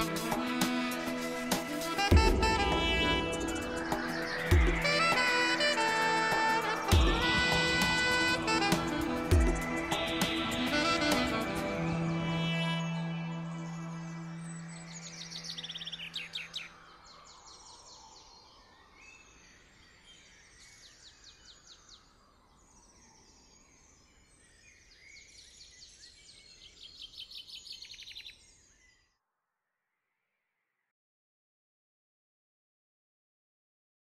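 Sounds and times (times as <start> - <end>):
held music note: 0.0 - 15.2
birds chirping and trilling: 0.0 - 29.2.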